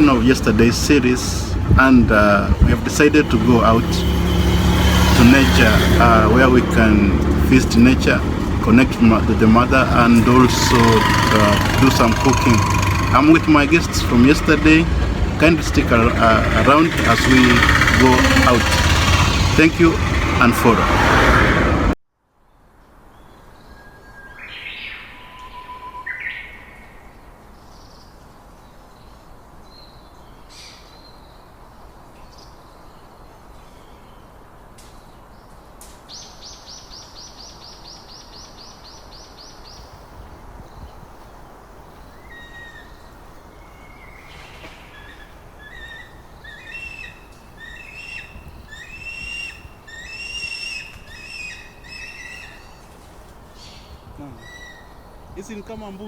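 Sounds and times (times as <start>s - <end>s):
repeated bird calls: 0.0s - 21.1s, 36.2s - 56.0s
faint outdoor hiss: 26.6s - 56.0s
birds chirping and whistling: 41.9s - 55.6s
fast high bird trill: 42.1s - 53.0s.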